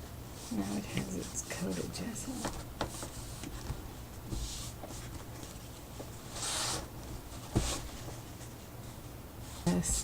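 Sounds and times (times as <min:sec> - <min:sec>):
cloth rubbing over paper: 0:00.3 - 0:02.4.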